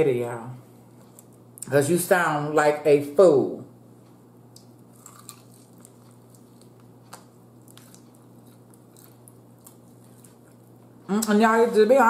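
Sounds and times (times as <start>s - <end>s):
chewing fried chicken: 4.6s - 11.0s.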